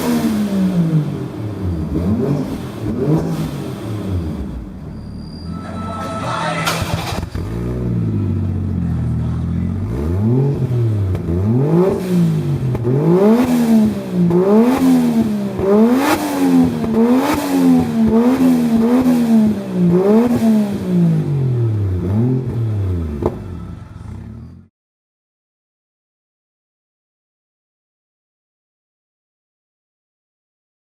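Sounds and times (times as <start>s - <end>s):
car engine revving: 0.0s - 24.7s.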